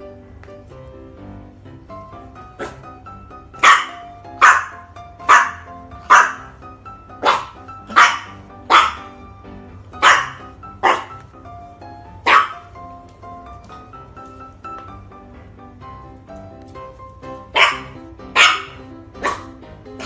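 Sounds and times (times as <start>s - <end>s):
background music: 0.0s - 20.0s
dog barking: 2.6s - 2.9s, 3.6s - 6.6s, 7.2s - 9.2s, 10.0s - 11.3s, 12.2s - 12.7s, 17.5s - 20.0s.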